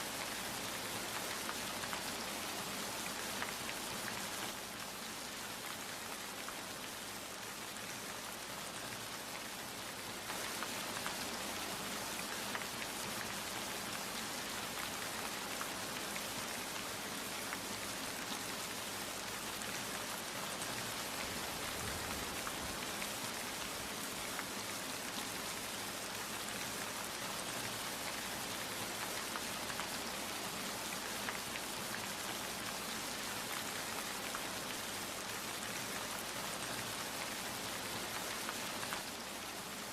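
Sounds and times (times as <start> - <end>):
rain hissing: 21.1 - 24.0.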